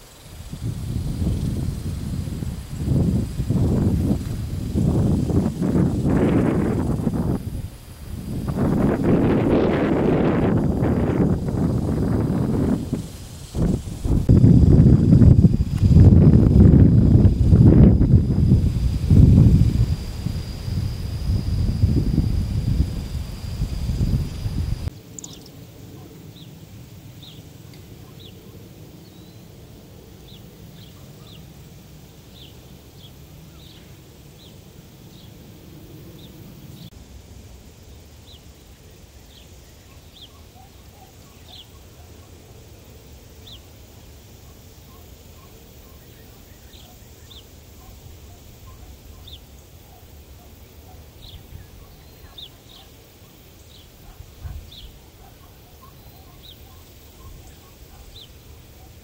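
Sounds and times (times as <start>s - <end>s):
small birds chirping: 17.0s - 26.6s, 27.2s - 29.5s, 30.2s - 31.6s, 32.3s - 35.4s, 37.9s - 42.6s, 43.2s - 43.8s, 44.4s - 59.0s.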